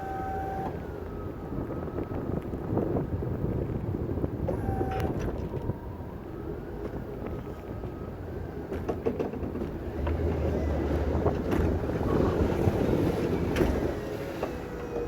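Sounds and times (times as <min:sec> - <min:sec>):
faint whining tones: 0:00.0 - 0:02.8, 0:04.5 - 0:08.4
engine rumbling: 0:00.0 - 0:15.0.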